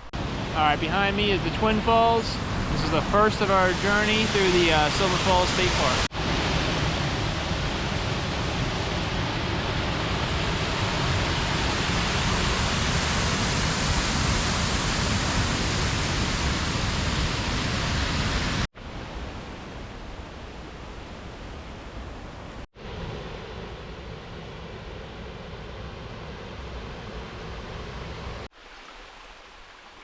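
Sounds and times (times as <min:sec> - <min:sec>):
waterfall rushing: 0:00.5 - 0:18.7.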